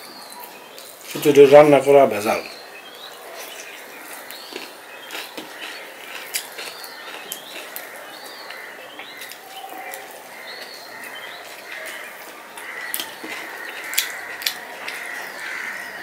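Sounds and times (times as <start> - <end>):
small birds chirping: 0.0 - 16.0
wet chewing and lip-smacking: 3.4 - 15.2.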